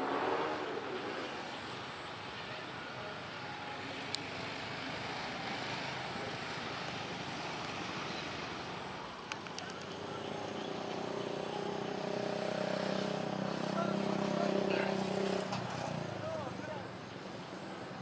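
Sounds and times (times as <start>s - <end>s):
small engine humming: 0.0s - 15.5s
jet engines roaring: 0.0s - 16.2s
sharp clicks: 9.2s - 10.0s.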